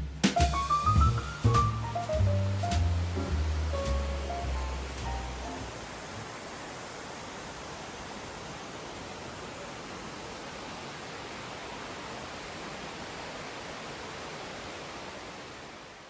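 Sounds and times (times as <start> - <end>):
steady rushing hiss: 0.0 - 10.8.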